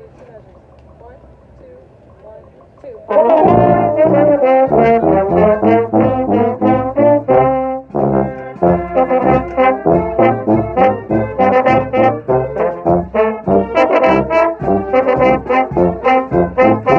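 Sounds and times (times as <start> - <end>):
pep band with brass playing: 1.1 - 16.9.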